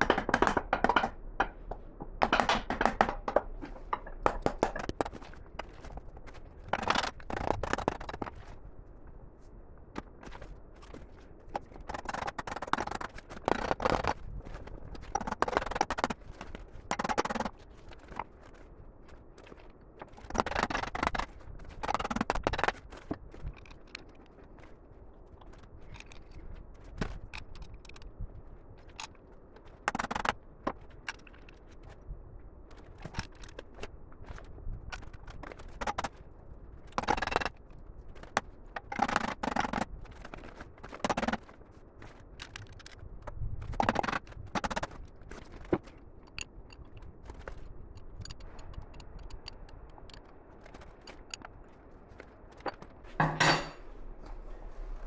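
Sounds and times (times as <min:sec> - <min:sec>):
tools scraping and clattering: 0:00.0 - 0:08.4, 0:52.2 - 0:55.0.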